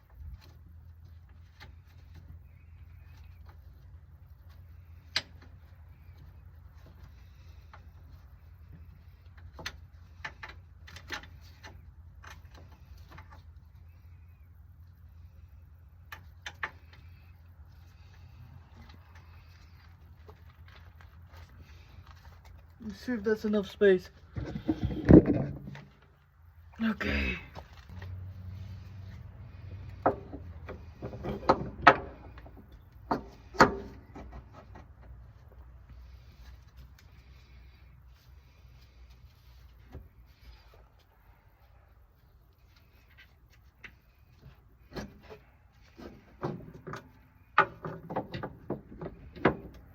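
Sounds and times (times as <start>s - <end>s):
tools and parts clattering: 24.3s - 26.1s.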